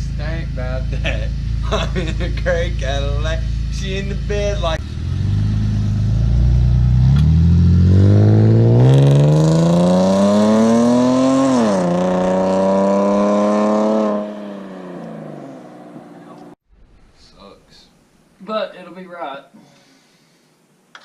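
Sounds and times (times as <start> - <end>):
vehicle engine accelerating: 0.0 - 16.6.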